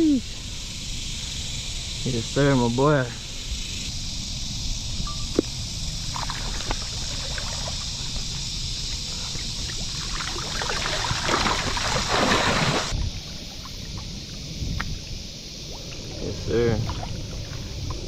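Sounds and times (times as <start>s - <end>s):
wind rumbling on microphone: 0.0s - 18.0s
water splashing: 6.0s - 15.0s, 15.6s - 18.0s.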